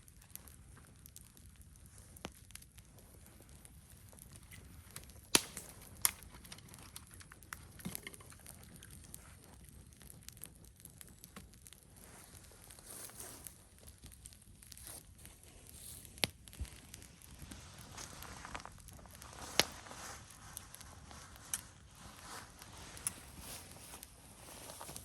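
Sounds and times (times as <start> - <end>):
campfire crackling: 0.0 - 25.0.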